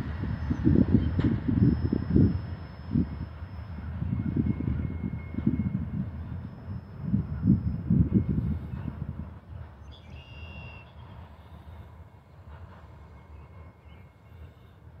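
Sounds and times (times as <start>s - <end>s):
freight cars rumbling on rails: 0.0s - 15.0s.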